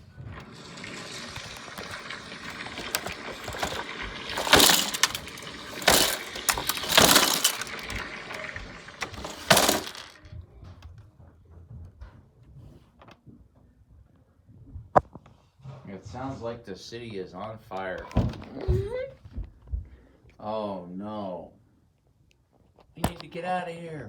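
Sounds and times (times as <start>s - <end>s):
crashing and shattering: 1.3s - 10.1s.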